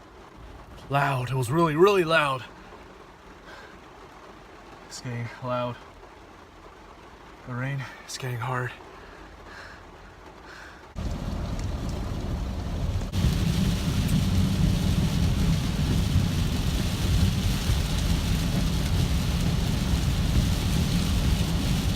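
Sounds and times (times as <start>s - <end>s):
heavy rain pouring: 0.0s - 21.9s.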